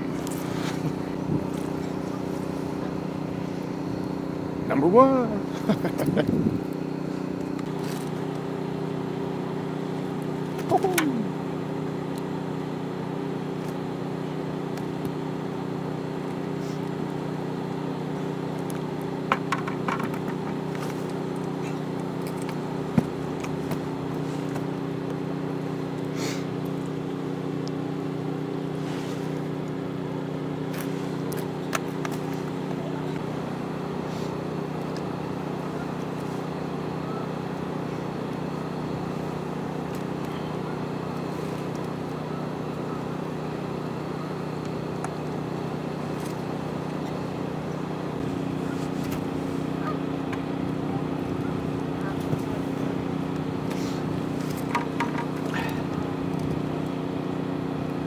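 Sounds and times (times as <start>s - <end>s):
generator engine running: 0.0s - 58.0s.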